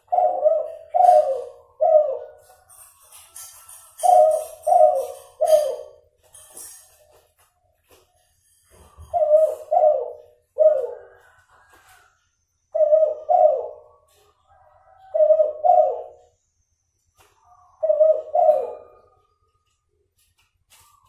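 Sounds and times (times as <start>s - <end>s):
dove cooing: 0.0s - 2.6s, 4.0s - 6.0s, 8.9s - 12.1s, 12.7s - 16.3s, 17.8s - 19.2s.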